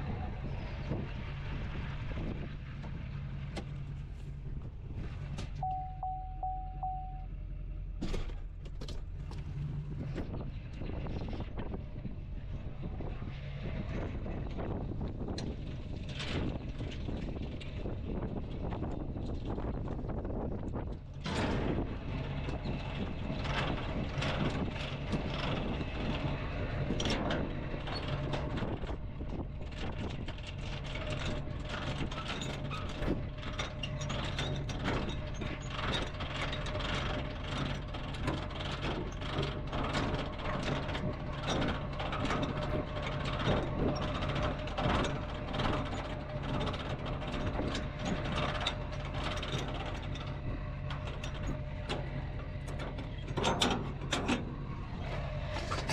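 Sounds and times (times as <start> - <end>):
steady low hum: 3.2 - 8.6.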